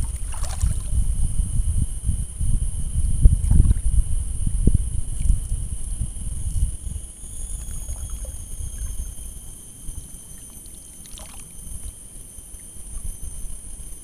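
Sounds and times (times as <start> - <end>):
wind buffeting microphone: 0.0 - 9.4
steady high-pitched tones: 4.4 - 14.0.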